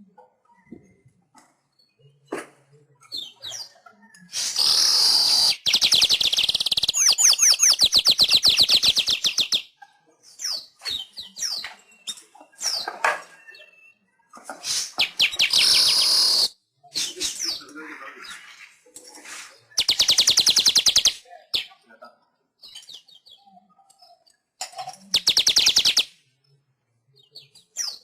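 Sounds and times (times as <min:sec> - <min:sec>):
weaver bird singing: 0:03.0 - 0:09.7, 0:10.3 - 0:14.1, 0:14.7 - 0:17.6, 0:19.7 - 0:21.8, 0:25.0 - 0:26.2.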